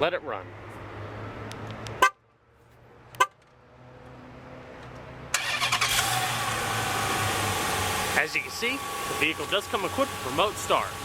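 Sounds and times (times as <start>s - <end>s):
car horn chirps: 2.0s - 2.2s, 3.2s - 3.4s
car engine starting and running: 3.2s - 11.0s.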